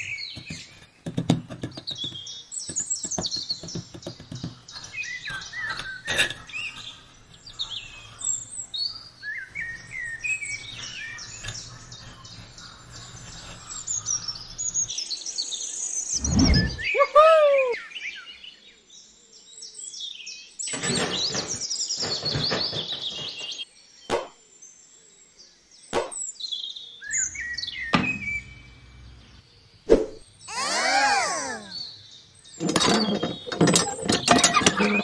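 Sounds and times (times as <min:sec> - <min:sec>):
birds chirping and singing: 0:00.0 - 0:35.0
thump: 0:27.9 - 0:28.6
short falling call: 0:30.5 - 0:31.9.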